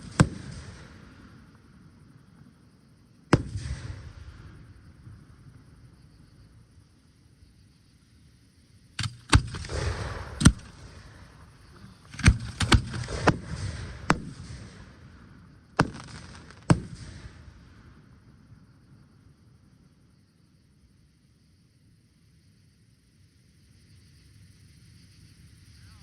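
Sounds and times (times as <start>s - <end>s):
firework shells bursting: 0.0s - 1.8s, 3.3s - 6.0s, 9.0s - 18.4s
crackling hiss of fireworks: 0.0s - 26.0s.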